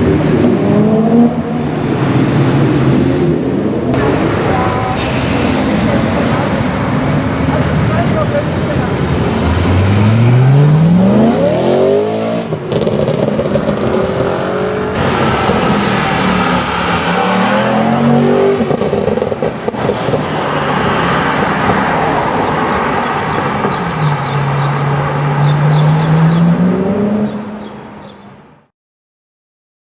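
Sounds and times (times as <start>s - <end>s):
car engine accelerating hard: 9.3s - 21.7s.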